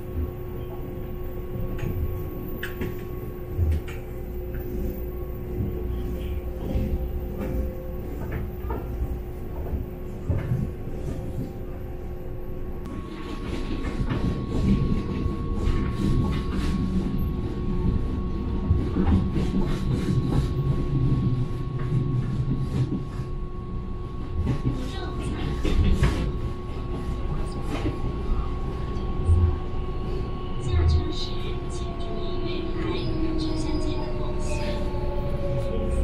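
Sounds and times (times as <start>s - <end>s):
train rumbling on rails: 0.0s - 36.0s.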